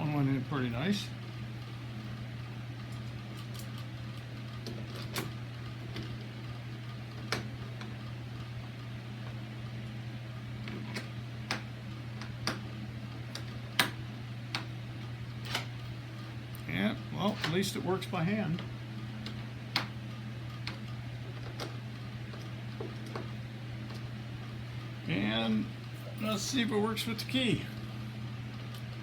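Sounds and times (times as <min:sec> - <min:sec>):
low room hum: 0:00.0 - 0:29.0.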